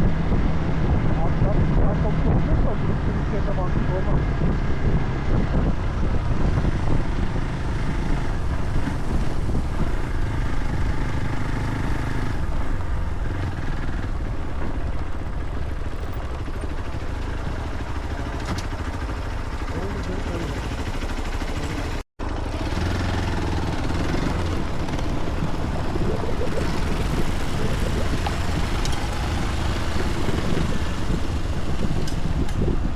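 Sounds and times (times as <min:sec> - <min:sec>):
vehicle engine and road rumble: 0:00.0 - 0:32.9.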